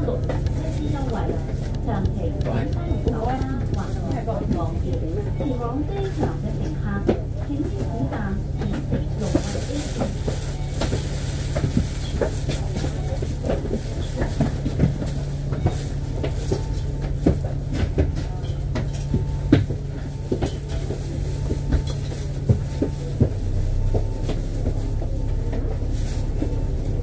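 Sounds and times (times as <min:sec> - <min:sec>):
bodywork rattling and clicking: 0:00.0 - 0:07.2
bus engine drone: 0:00.0 - 0:27.0.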